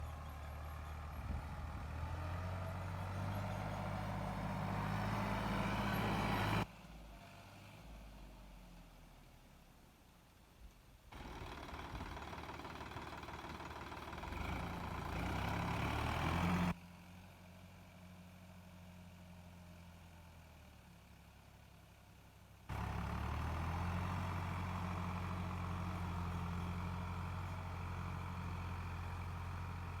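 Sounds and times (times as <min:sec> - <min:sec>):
tractor diesel engine running: 0:00.0 - 0:06.7, 0:11.1 - 0:16.8, 0:22.7 - 0:30.0.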